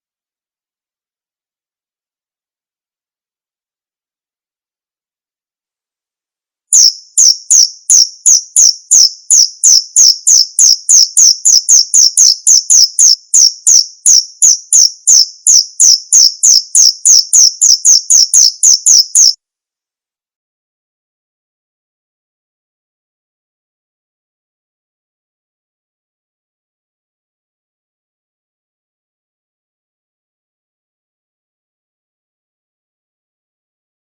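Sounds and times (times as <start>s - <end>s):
cricket chirping: 6.8s - 19.4s.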